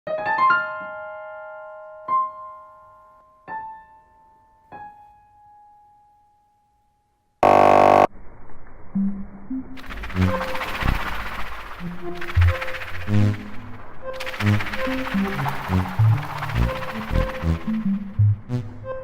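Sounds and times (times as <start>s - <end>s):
loud buzzing tone: 7.4s - 8.1s.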